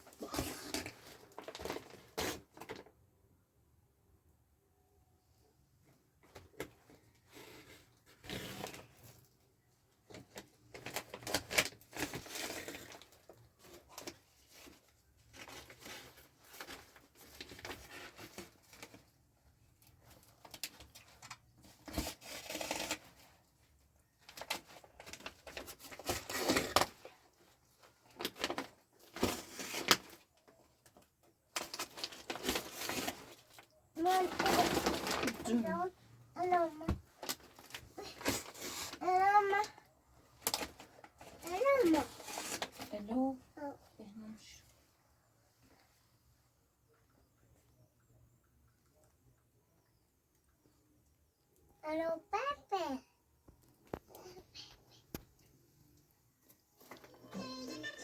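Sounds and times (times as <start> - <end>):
plastic bags rustling: 0.0 - 2.9, 10.0 - 39.6.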